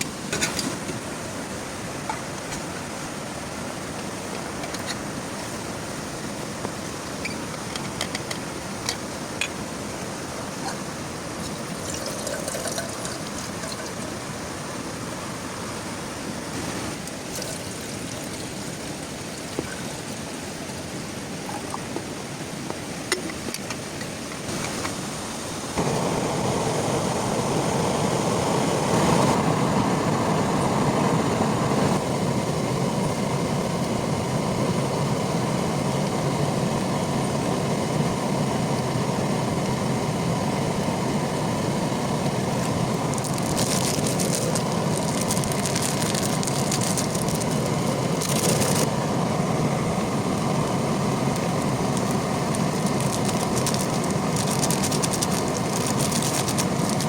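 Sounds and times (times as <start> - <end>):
heavy rain falling: 41.2 - 49.1, 49.8 - 57.0.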